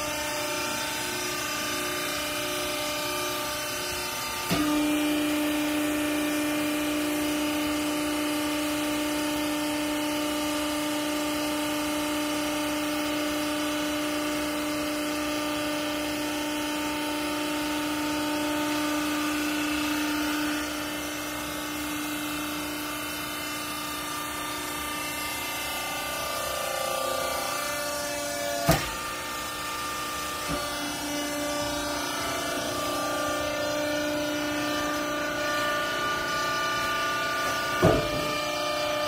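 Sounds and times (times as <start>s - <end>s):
hydraulic pump humming and whining: 0.0s - 39.0s
knock: 37.8s - 38.4s.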